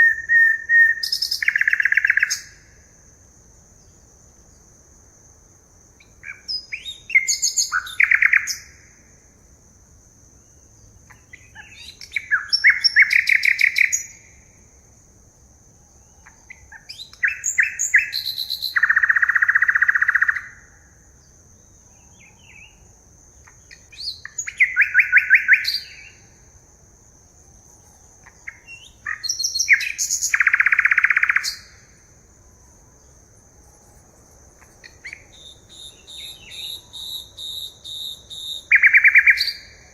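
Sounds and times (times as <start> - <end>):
songbird with buzzy trill: 0.0 - 2.8, 6.0 - 9.0, 10.5 - 14.8, 15.7 - 26.5, 27.6 - 32.0, 33.8 - 39.9.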